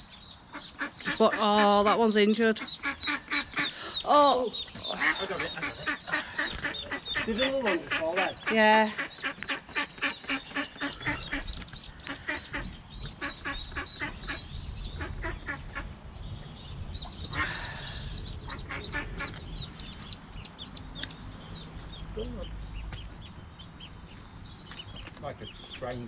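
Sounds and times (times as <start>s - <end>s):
ducklings peeping: 0.0s - 26.0s
duck quacking: 0.5s - 15.9s, 18.5s - 19.4s.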